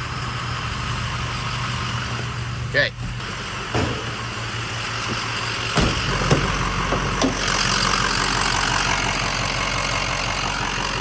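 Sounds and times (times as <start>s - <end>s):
diesel engine idling: 0.0s - 11.0s
sharp knocks and clicks: 5.8s - 7.4s.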